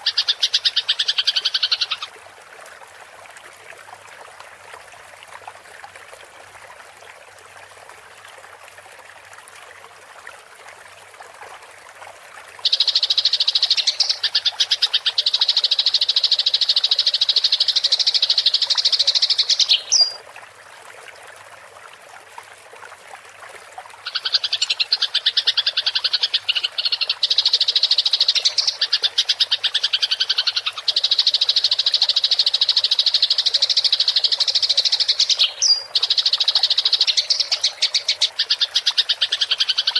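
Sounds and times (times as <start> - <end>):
faint running water: 0.0 - 39.9.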